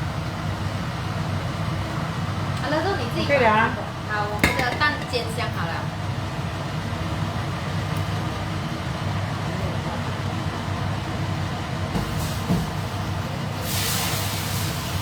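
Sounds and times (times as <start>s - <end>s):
low mechanical hum: 0.0s - 15.0s
rushing hiss: 12.0s - 15.0s.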